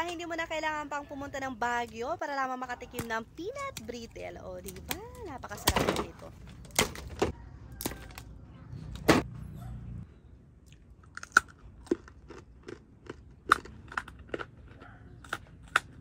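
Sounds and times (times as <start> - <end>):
peanut brittle crunching: 10.7 - 16.0.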